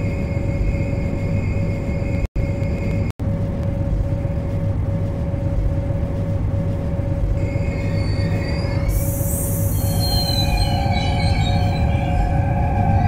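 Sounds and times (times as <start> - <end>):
metro train rumble and hum: 0.0 - 13.0
high-pitched whining tones: 7.4 - 13.0
hiss: 8.9 - 10.2.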